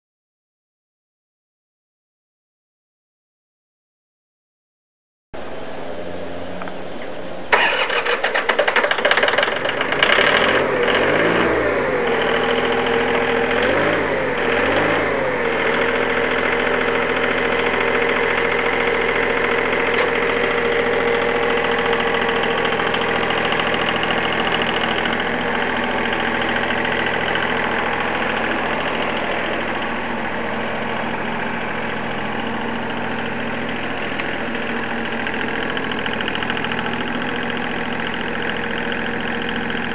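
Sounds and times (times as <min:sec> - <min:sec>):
engine starting and revving: 0:07.5 - 0:33.8.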